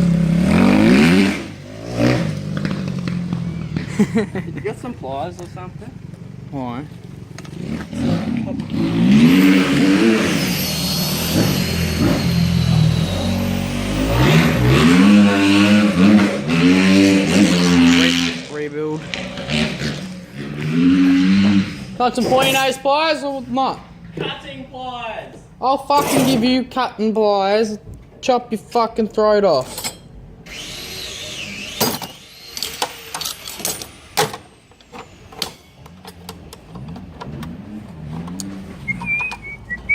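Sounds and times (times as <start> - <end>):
car engine idling and revving: 0.0 - 26.6, 29.8 - 39.9
wavering high-pitched squeal: 8.8 - 16.8, 38.8 - 39.9
high whine falling in pitch: 9.8 - 15.4
hand tools clicking and clanking: 29.6 - 30.2, 31.8 - 37.6, 38.2 - 39.9.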